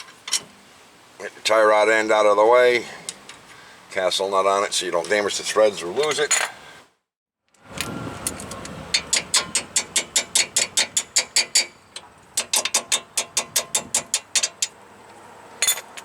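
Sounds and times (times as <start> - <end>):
ratchet wrench clicking: 8.4 - 14.7.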